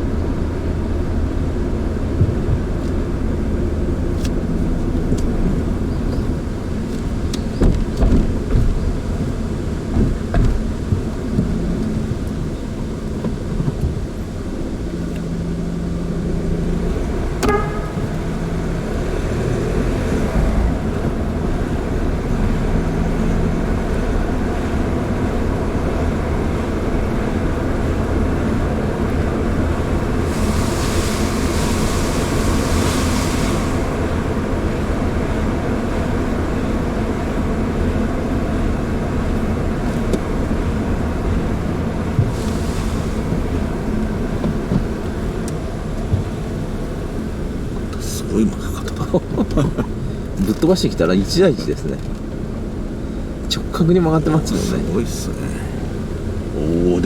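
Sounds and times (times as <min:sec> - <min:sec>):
car engine and tyre rumble: 0:00.0 - 0:57.0
brief squeak: 0:17.4 - 0:18.2
hiss: 0:29.8 - 0:34.8, 0:42.0 - 0:45.1.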